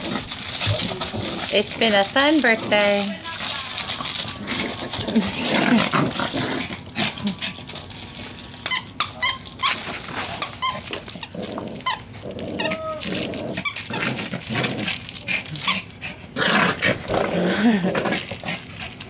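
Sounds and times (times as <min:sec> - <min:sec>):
dog growling in play: 0:00.0 - 0:07.8, 0:08.7 - 0:19.0
toy squeaks: 0:08.7 - 0:09.8.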